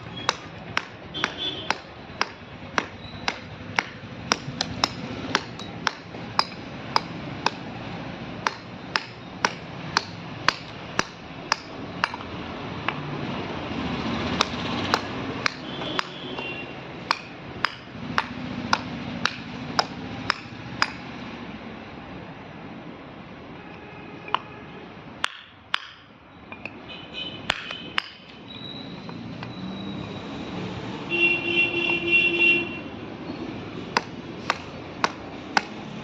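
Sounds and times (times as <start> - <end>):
mallet tapping a chisel: 0.0 - 13.1, 14.3 - 21.1, 25.2 - 26.8, 27.5 - 28.4, 33.9 - 36.0.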